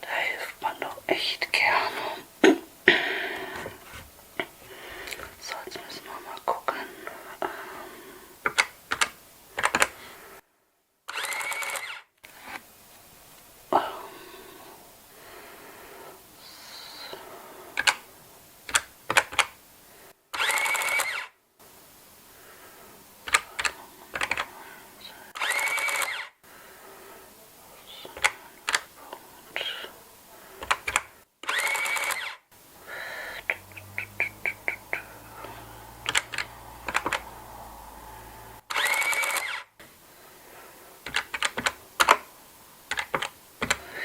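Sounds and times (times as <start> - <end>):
cash register mechanism whirring: 20.4 - 21.2, 25.4 - 26.2, 31.4 - 32.4, 38.7 - 39.6.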